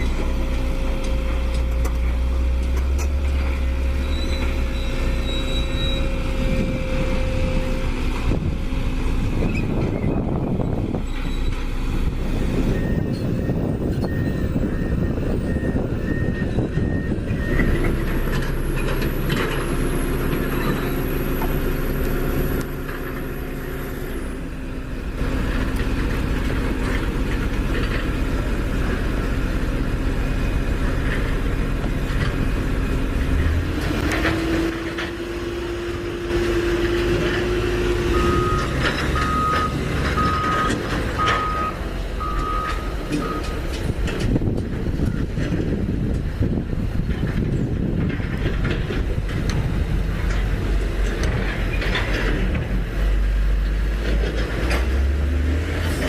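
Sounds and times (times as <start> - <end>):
heavy vehicle engine running: 0.0 - 56.0
reversing alarm beeping: 12.7 - 17.8, 38.0 - 43.6.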